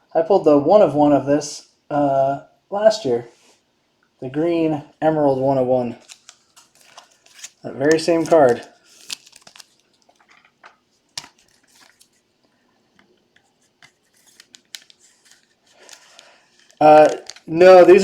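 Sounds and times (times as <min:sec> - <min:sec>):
trading cards rustling and clicking: 0:06.0 - 0:12.2, 0:13.0 - 0:18.0.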